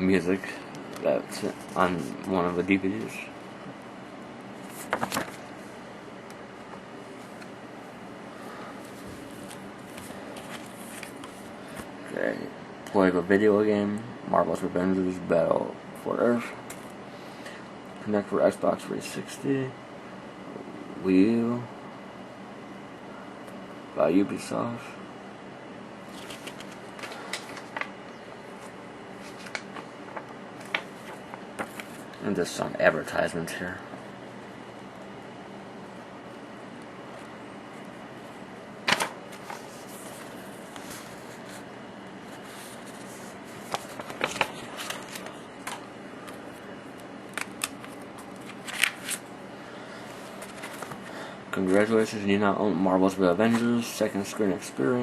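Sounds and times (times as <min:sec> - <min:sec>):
paper rustling: 0:04.6 - 0:05.5, 0:08.8 - 0:11.9, 0:26.0 - 0:32.2, 0:38.8 - 0:46.6, 0:47.3 - 0:49.2, 0:50.0 - 0:51.8.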